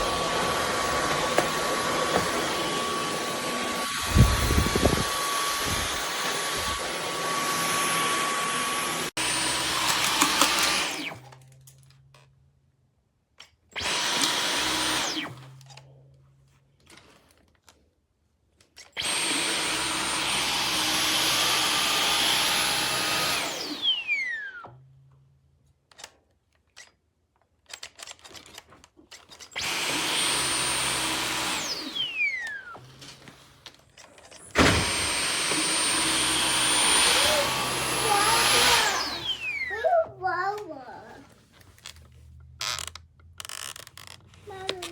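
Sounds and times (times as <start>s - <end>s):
vacuum motor whining: 0.0s - 11.3s, 13.8s - 15.6s, 19.0s - 24.7s, 29.6s - 41.4s.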